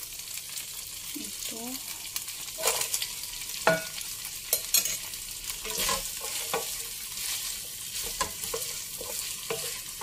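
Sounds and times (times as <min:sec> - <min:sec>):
food sizzling in a wok: 0:00.0 - 0:10.0
wooden spatula scraping a pan: 0:02.6 - 0:03.9, 0:04.7 - 0:10.0.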